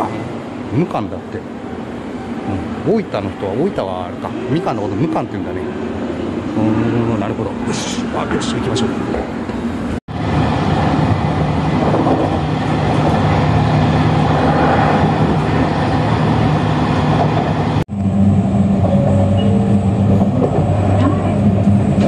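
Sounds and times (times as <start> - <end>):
wheels rumbling on rail: 0.0 - 22.0
low motor hum: 9.4 - 22.0.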